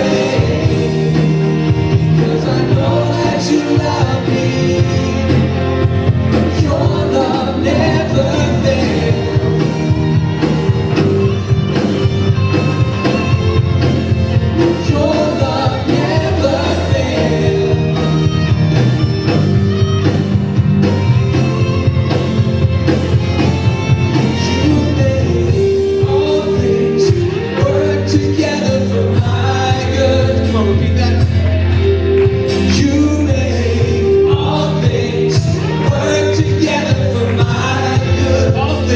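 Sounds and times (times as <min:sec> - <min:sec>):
voices singing: 0:00.0 - 0:11.4, 0:14.3 - 0:18.8, 0:24.2 - 0:38.9
live band worship song: 0:00.0 - 0:38.9
steady drum beat: 0:00.0 - 0:38.9.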